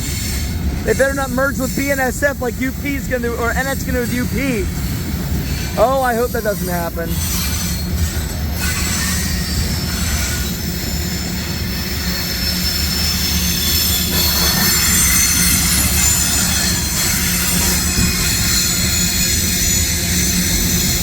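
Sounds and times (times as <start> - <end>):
steel wheels rumbling on rail: 0.0 - 21.0
high-pitched wheel squeal: 6.6 - 21.0.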